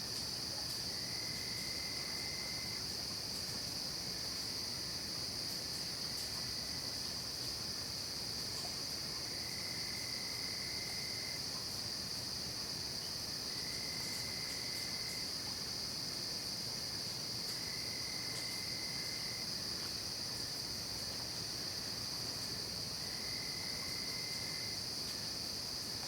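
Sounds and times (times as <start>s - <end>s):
crickets trilling: 0.0s - 26.0s
fainter lower insect trill: 0.0s - 26.0s.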